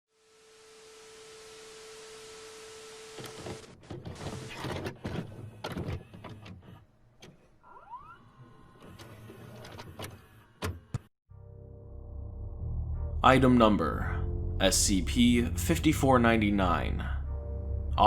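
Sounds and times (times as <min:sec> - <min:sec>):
tv static hiss: 0:00.1 - 0:03.7
mechanical clicks and clunks: 0:03.2 - 0:07.6, 0:08.7 - 0:11.1
short rising whistles: 0:07.6 - 0:08.4.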